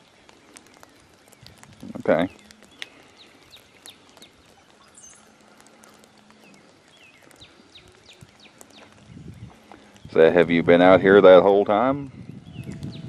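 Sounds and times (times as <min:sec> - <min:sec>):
high bird chirps: 0:00.6 - 0:10.3, 0:12.3 - 0:13.0.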